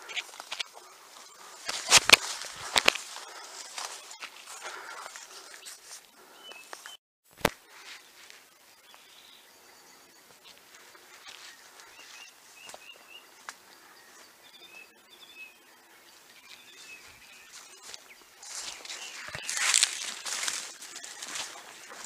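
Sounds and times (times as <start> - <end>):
faint bird chirps: 7.7 - 22.0.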